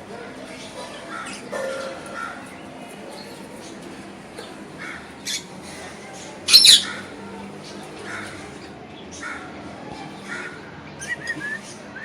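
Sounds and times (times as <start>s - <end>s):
parakeet calls: 4.9s - 5.5s, 6.5s - 7.0s.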